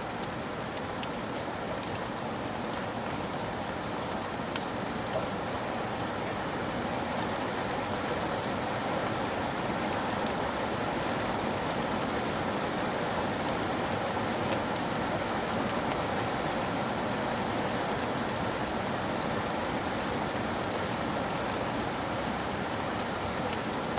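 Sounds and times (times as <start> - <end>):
steady rain falling: 0.0 - 23.9.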